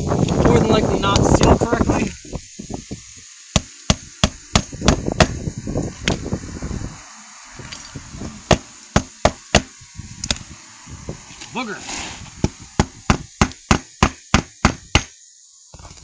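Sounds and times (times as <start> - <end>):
hammer striking roofing nails: 3.5 - 5.4, 8.5 - 9.8, 12.4 - 15.1.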